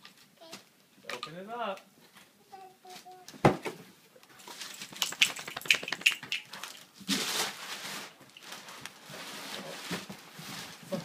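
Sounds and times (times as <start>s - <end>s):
paper crinkling: 4.4s - 10.9s.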